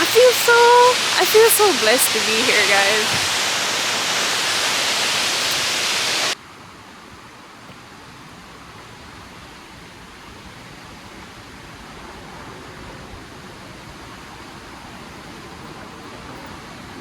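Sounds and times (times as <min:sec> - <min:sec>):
waterfall roaring: 0:00.0 - 0:06.4.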